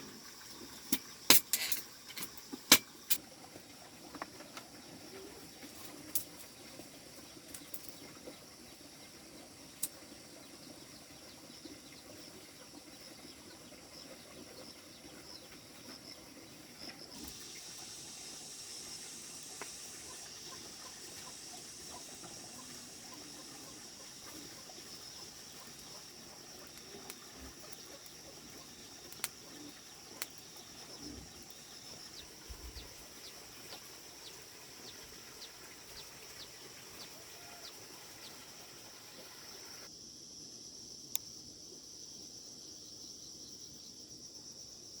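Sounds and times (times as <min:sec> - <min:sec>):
high insect drone: 0:14.6 - 0:45.0.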